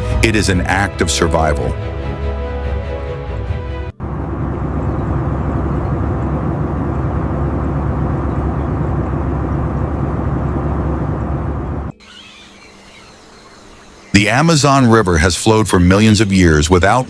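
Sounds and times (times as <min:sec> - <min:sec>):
loud low rushing noise: 0:04.0 - 0:11.9.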